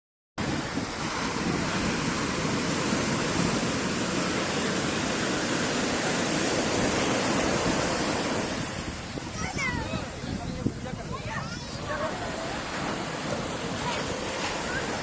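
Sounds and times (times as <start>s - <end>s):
surf breaking on a beach: 0.4s - 15.0s.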